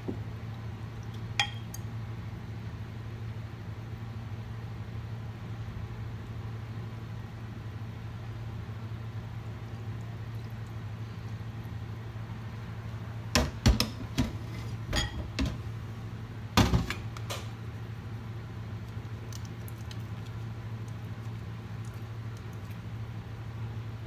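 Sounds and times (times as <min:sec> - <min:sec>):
cookware clinking and knocking: 0:13.4 - 0:15.6.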